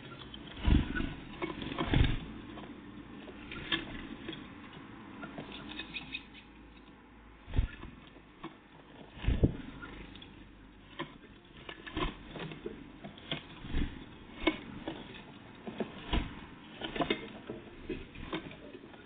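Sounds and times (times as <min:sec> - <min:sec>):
birds pecking and scratching: 0:00.0 - 0:19.0
heavier thumps: 0:01.8 - 0:02.3, 0:07.5 - 0:08.0, 0:09.2 - 0:09.7, 0:16.0 - 0:16.6.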